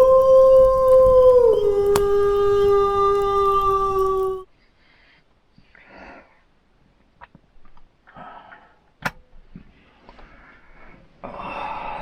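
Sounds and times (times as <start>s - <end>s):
wolf howling: 0.0s - 4.5s.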